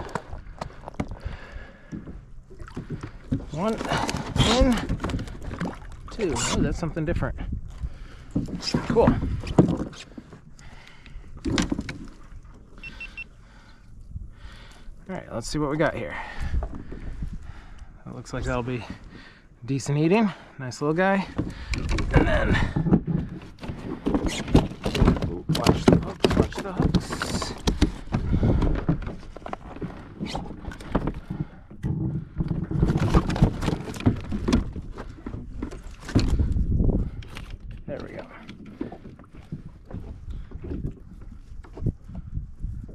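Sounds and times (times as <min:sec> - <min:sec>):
knocks and rattles of fish handling: 0:00.0 - 0:12.8, 0:16.0 - 0:20.0, 0:20.9 - 0:42.9
water lapping: 0:00.0 - 0:42.6
high electronic beeps: 0:12.9 - 0:13.3.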